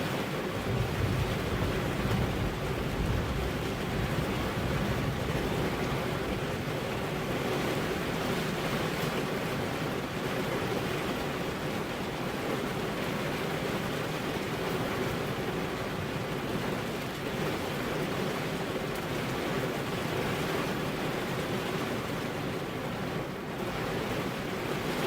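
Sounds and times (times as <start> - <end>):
heavy rain: 0.0 - 25.0
thunder rumble: 0.6 - 7.3.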